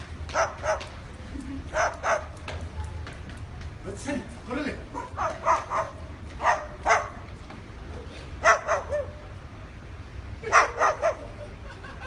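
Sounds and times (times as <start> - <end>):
cockatoo mimicking dog barks: 4.9 - 7.2, 8.4 - 9.2, 10.4 - 11.4.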